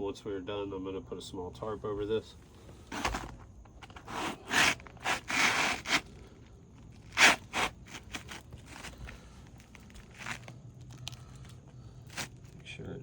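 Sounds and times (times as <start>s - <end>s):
roof shingle scraping: 2.4s - 12.6s.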